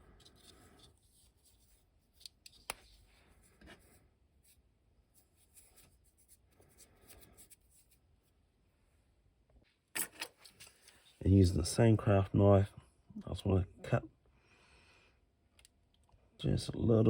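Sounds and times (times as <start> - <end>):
light rustling and rubbing: 0.0 - 8.4.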